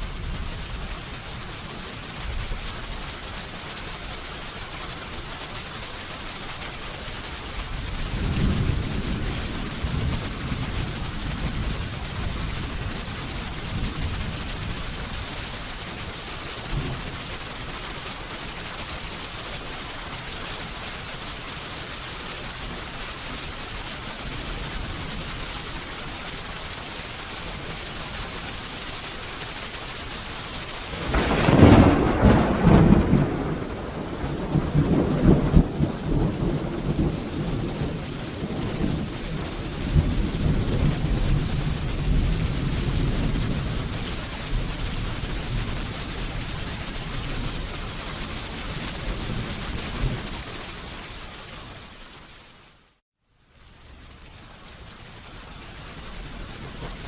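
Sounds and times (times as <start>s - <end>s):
steady rain falling: 0.0s - 57.0s
thunderclap and rumble: 7.6s - 15.2s, 16.6s - 17.4s, 30.9s - 50.4s.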